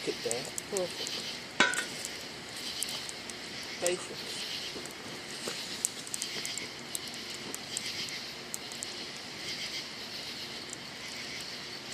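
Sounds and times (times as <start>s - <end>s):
campfire crackling and popping: 0.0s - 11.9s
crickets chirring: 0.0s - 11.9s.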